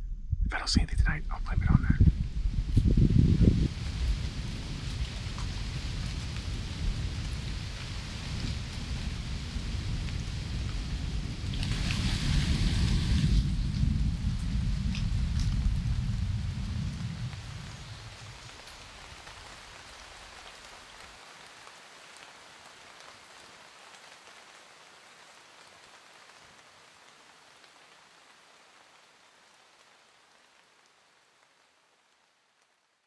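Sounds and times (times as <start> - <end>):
low thunder rumble: 0.0 - 18.6
steady rain falling: 2.1 - 33.0.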